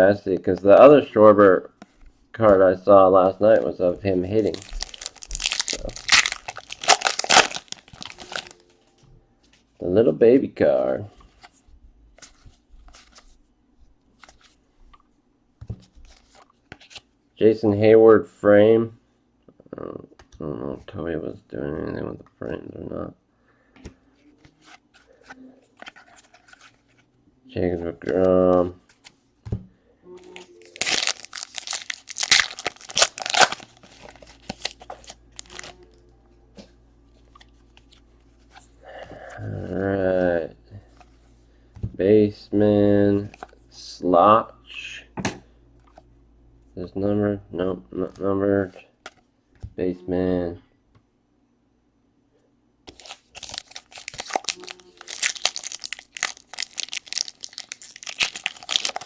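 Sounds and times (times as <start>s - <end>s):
wrapper tearing and crinkling: 4.4s - 8.6s, 30.4s - 35.8s, 52.9s - 59.0s.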